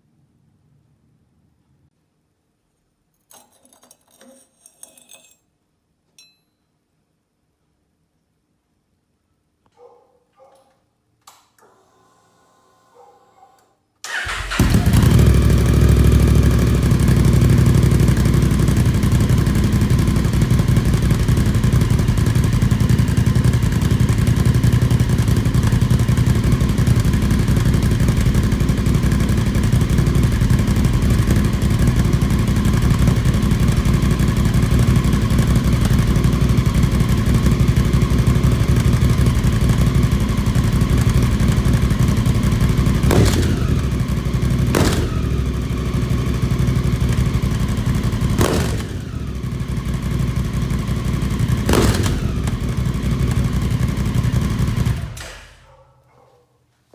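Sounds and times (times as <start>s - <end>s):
motorcycle engine running: 14.1s - 55.4s.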